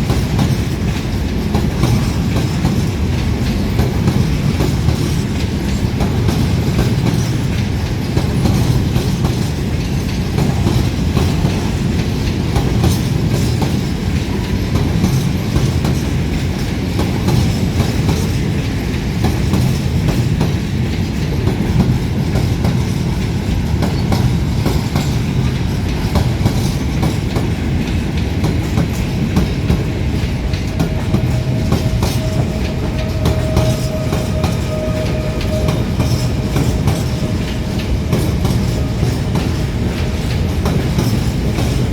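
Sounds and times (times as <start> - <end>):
train wagons rumbling: 0.0 - 41.9
wheels clattering over rail joints: 0.0 - 41.9
faint squeal: 30.9 - 39.6.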